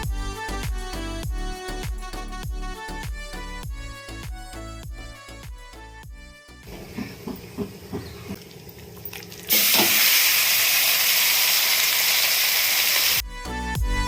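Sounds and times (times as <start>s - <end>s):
chicken sizzling in hot oil: 9.5s - 13.2s.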